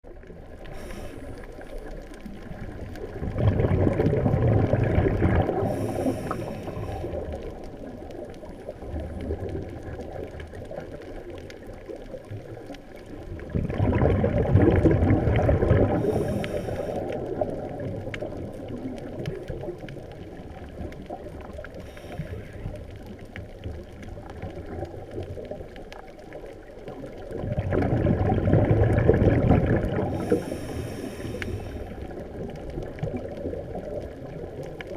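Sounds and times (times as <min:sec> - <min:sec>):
underwater bubbles from exhaling: 0:00.0 - 0:34.9
faint regulator hisses: 0:00.6 - 0:01.8, 0:05.6 - 0:07.3, 0:16.0 - 0:17.2, 0:21.8 - 0:22.7, 0:30.1 - 0:32.0.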